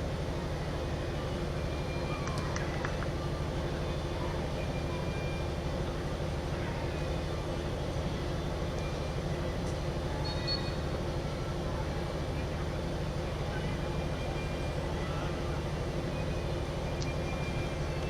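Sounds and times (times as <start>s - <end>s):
low mechanical hum: 0.0s - 18.0s
faint high squeaks: 10.2s - 10.9s.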